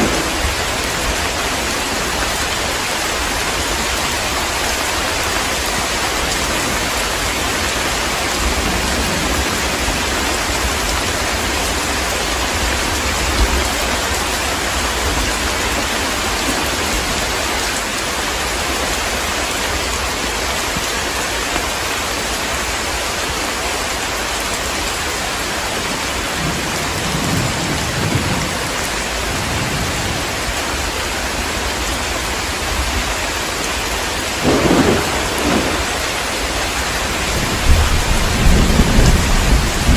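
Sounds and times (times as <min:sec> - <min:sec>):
thunder rumbling: 0:00.0 - 0:04.4, 0:05.0 - 0:17.4, 0:25.4 - 0:31.4, 0:34.1 - 0:39.9
heavy rain falling: 0:00.0 - 0:39.9.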